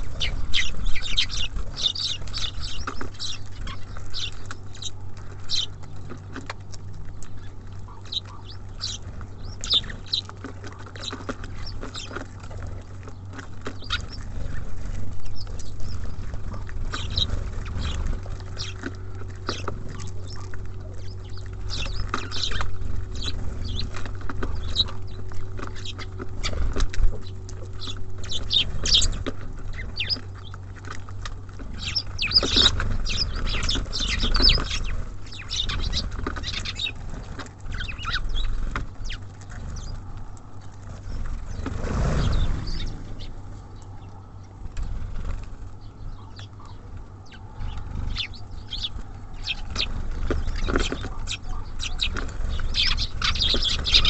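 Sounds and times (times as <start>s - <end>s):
birds pecking on feeder: 0.0s - 54.0s
songbirds chirping: 0.0s - 54.0s
steady low hum: 0.0s - 54.0s.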